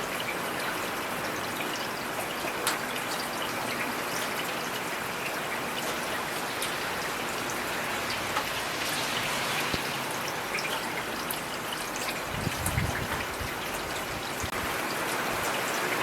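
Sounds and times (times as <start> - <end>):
raindrops ticking: 0.0 - 16.0
heavy rain hissing: 6.4 - 16.0.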